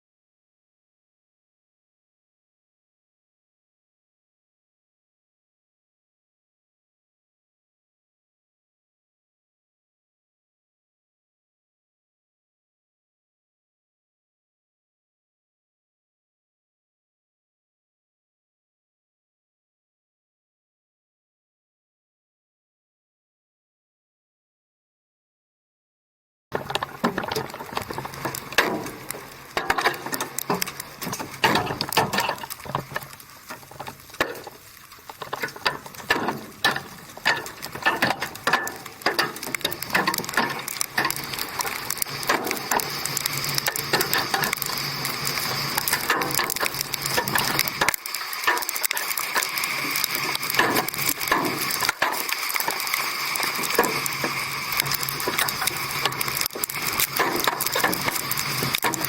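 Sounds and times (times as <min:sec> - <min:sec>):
hailstones hitting vehicle: 0:26.6 - 0:59.0
wind and rain rushing: 0:26.7 - 0:59.0.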